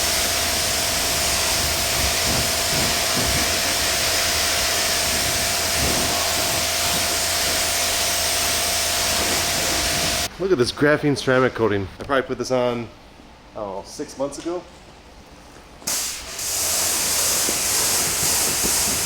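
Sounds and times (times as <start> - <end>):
pressure washer spraying water: 0.0 - 10.3, 15.9 - 19.0.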